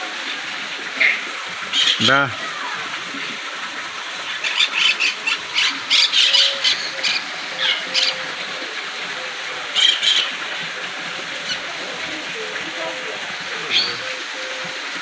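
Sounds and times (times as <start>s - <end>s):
birds squawking: 1.0s - 3.4s, 4.2s - 14.8s.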